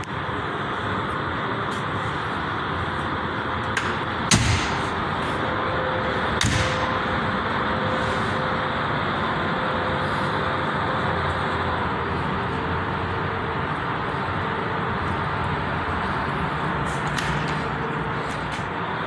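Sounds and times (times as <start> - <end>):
steady outdoor noise: 0.0 - 19.0
sharp knocks: 3.7 - 5.4, 6.4 - 7.2.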